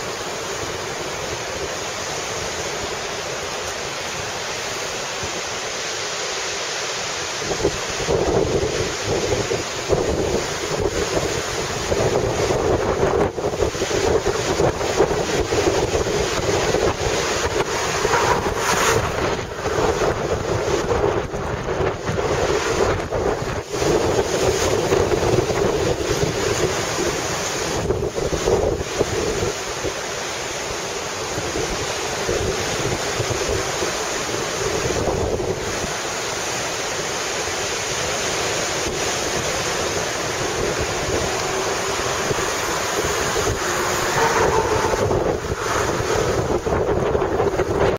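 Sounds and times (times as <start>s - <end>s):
surf rushing: 0.0s - 47.9s
wind buffeting microphone: 7.4s - 30.0s, 31.2s - 36.0s, 38.4s - 47.9s.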